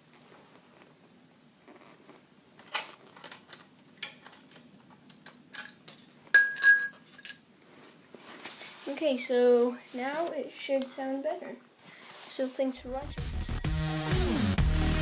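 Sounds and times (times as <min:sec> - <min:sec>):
small metal parts clinking: 0:05.0 - 0:07.6.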